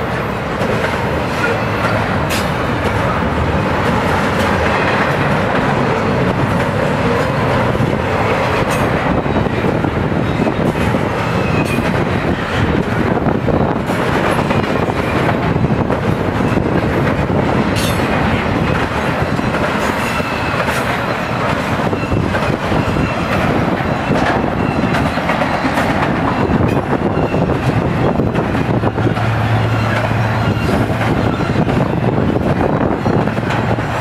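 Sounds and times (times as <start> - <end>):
train wheels rushing on rail: 0.0 - 34.0
wheels clacking over rail joints: 0.0 - 34.0
faint wheel squeal: 29.5 - 32.1.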